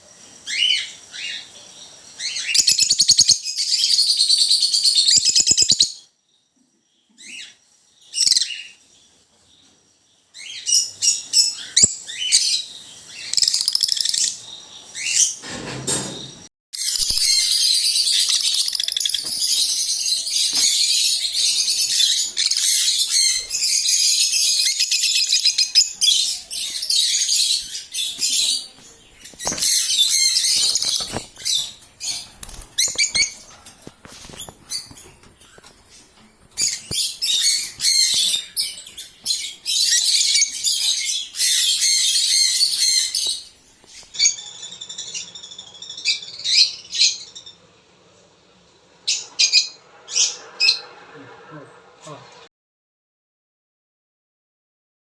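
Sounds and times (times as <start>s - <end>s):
thin bird chirps: 16.8s - 47.6s
lovebirds chattering and shrieking: 16.8s - 47.8s.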